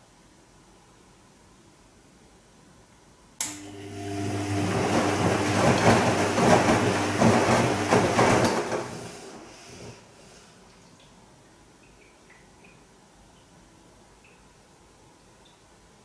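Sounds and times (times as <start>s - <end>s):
washing machine motor hum: 3.4s - 10.3s
water and laundry sloshing: 4.0s - 11.0s.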